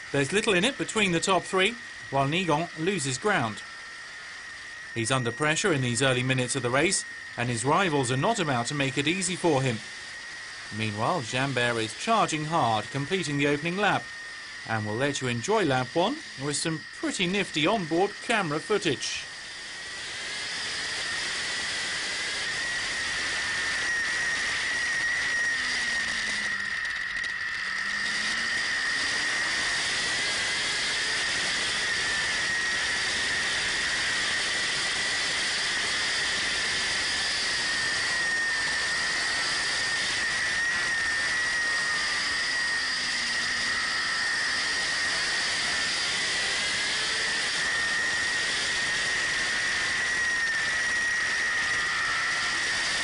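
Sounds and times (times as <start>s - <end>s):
superbike engine whine: 0.0s - 53.0s.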